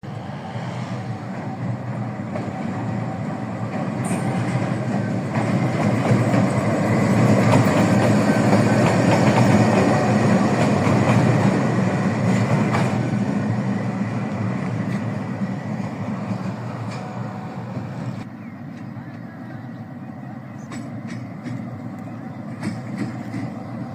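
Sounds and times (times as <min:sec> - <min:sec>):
locomotive engine drone: 0:00.0 - 0:23.9
wheels clicking on rails: 0:01.3 - 0:17.4, 0:20.6 - 0:23.9.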